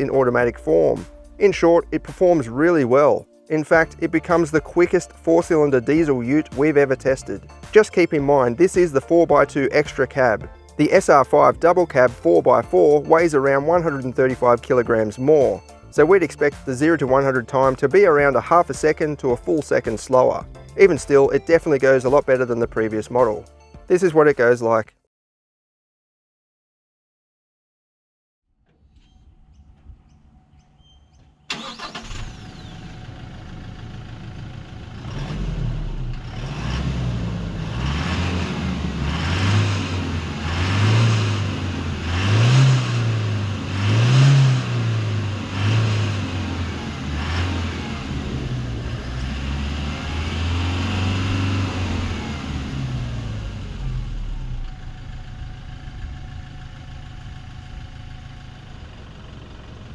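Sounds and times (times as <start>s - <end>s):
diesel engine revving: 31.5s - 59.9s.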